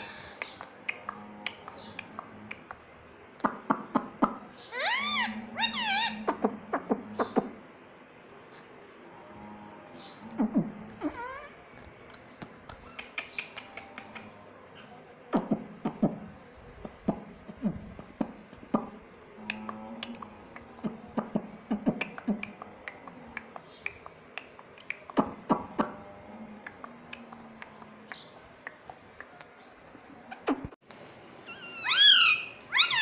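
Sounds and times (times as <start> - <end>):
parrot clicking and chirping: 0.3 - 2.8, 12.7 - 14.3, 21.8 - 25.9.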